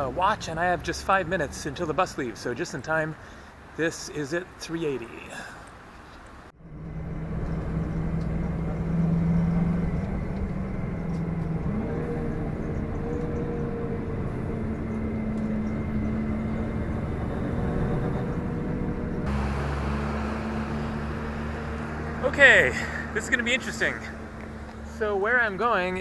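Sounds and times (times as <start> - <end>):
road noise: 0.0 - 26.0
bus engine accelerating: 6.5 - 26.0.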